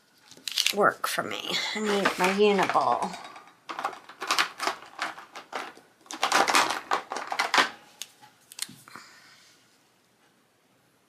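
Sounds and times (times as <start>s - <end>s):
plastic pens clicking and clattering: 0.3s - 0.8s, 1.9s - 8.7s.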